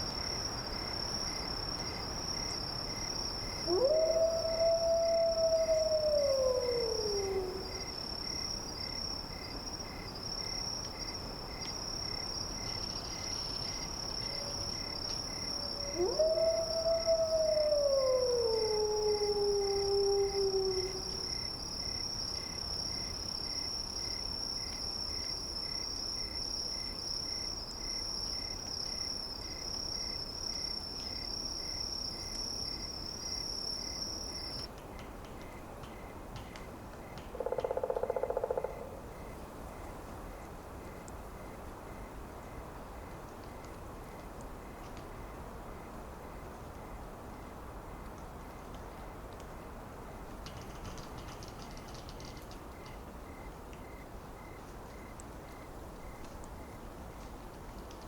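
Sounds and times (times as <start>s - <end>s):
wolf-like canine howl: 3.6s - 7.8s, 15.6s - 21.2s.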